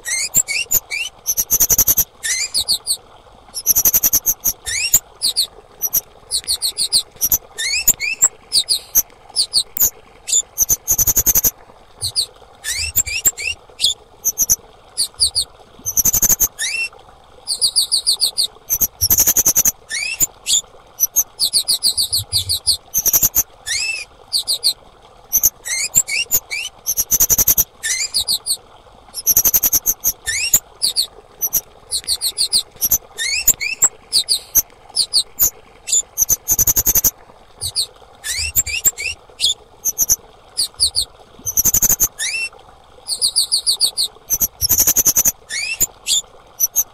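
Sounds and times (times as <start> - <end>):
thrush calling: 0.0 - 3.0, 3.6 - 16.9, 17.5 - 28.6, 29.2 - 42.5, 43.1 - 46.9.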